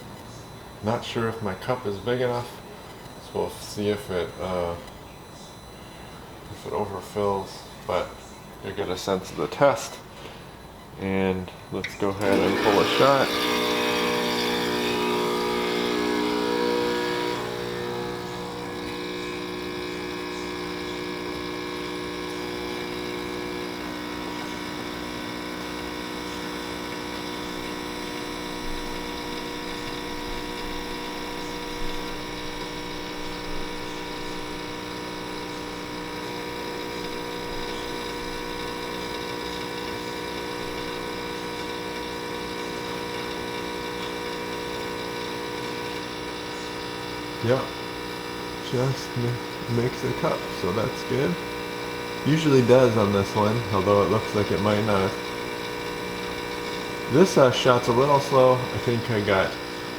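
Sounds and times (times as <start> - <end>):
espresso machine pump humming: 0.0 - 59.9.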